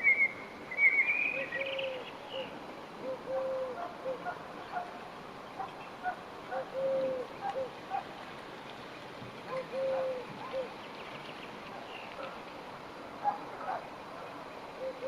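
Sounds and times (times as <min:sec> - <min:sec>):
dove cooing: 0:01.3 - 0:05.0, 0:05.6 - 0:08.1, 0:09.5 - 0:10.8, 0:13.1 - 0:15.0
small birds chirping: 0:09.5 - 0:12.4.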